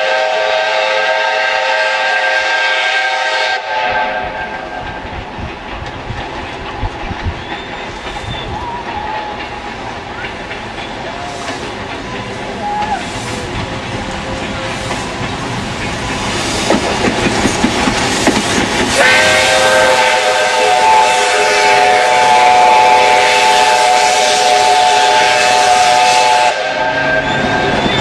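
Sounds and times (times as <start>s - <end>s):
steam whistle chord: 0.0s - 4.8s, 18.9s - 27.7s
hissing steam: 0.0s - 28.0s
train wheel clatter: 0.1s - 28.0s.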